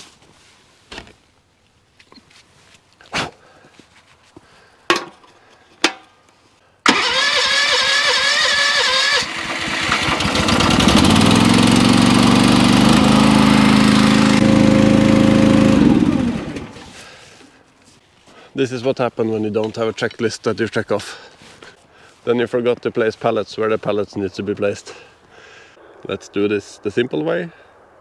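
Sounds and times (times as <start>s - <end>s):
engine cranking and starting: 6.9s - 17.6s.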